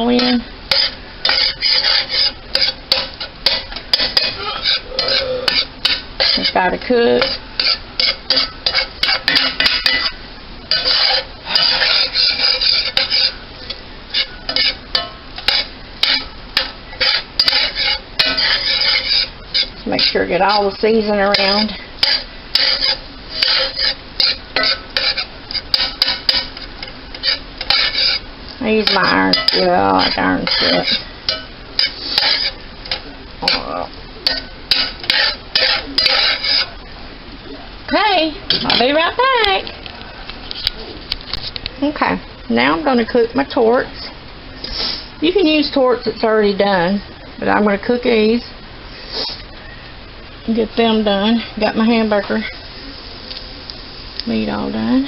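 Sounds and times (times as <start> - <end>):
utensil scraping meat in skillet: 0.0 - 36.9.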